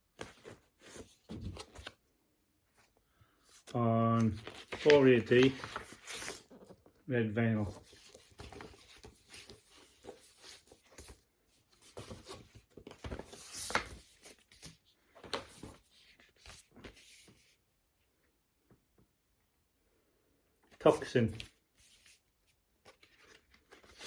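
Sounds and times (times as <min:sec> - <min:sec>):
vinyl records being handled: 0:00.0 - 0:02.1, 0:02.7 - 0:07.0, 0:07.6 - 0:17.6, 0:20.8 - 0:24.0.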